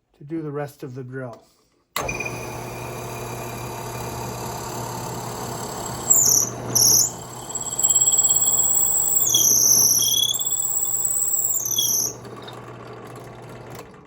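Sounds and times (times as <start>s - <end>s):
drill bit squealing into wood: 2.0s - 12.6s
drill press humming: 2.0s - 14.0s.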